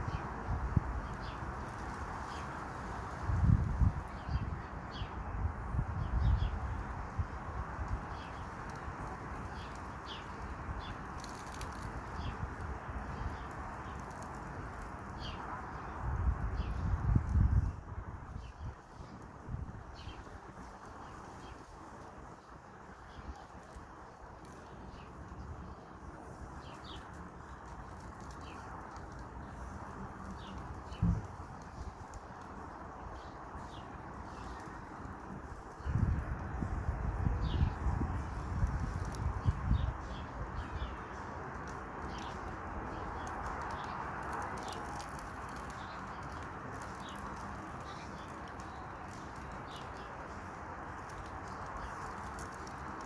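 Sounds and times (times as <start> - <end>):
campfire hissing and crackling: 41.3 - 53.0.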